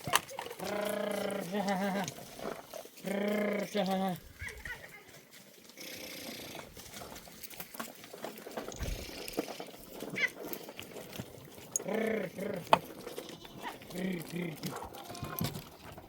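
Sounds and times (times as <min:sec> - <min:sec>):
faint rustling: 0:00.0 - 0:16.0
livestock bleating: 0:00.6 - 0:02.1, 0:11.9 - 0:15.6.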